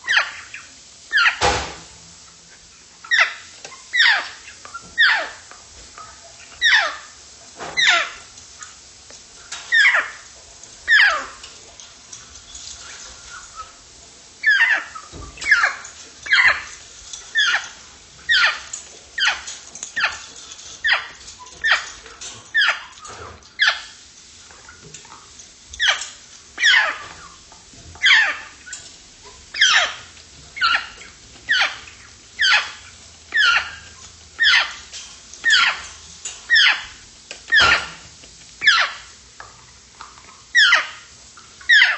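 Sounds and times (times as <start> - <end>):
parrot whistling calls: 10.9 - 11.3, 14.4 - 16.7, 25.8 - 27.1, 32.4 - 34.8, 38.6 - 39.1, 41.6 - 41.9.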